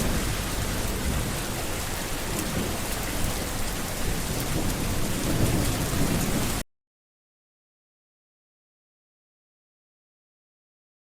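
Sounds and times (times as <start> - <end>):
heavy rain: 0.0 - 6.6
low rumble of thunder: 0.0 - 6.6.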